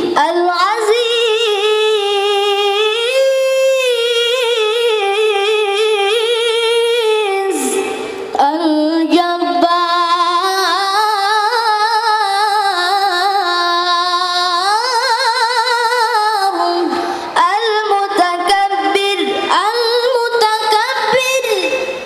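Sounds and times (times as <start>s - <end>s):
child reciting melodically: 0.0s - 22.0s.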